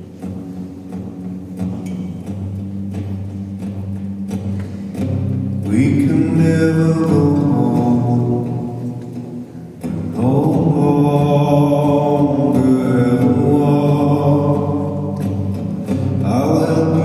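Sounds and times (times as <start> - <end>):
man singing slow song: 5.6 - 17.0.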